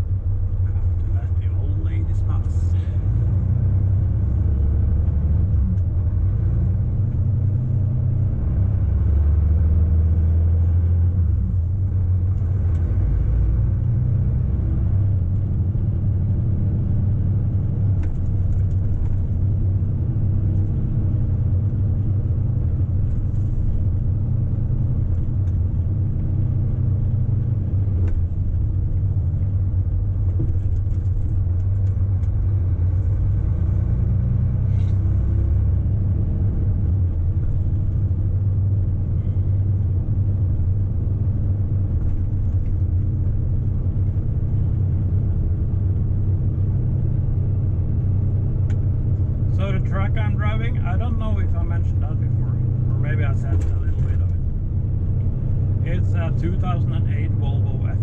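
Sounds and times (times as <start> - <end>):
truck engine and road rumble: 0.0 - 58.0.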